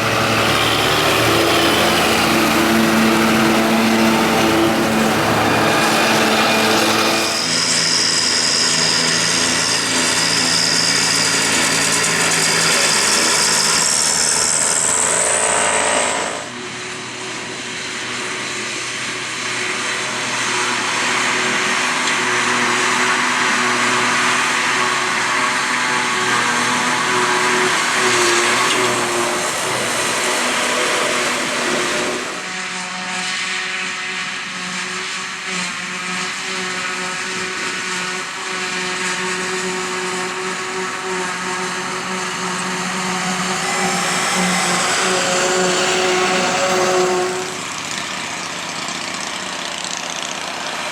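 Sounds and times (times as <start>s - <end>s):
high machine whine: 0.0s - 50.9s
tractor and harvester engines: 0.0s - 50.9s.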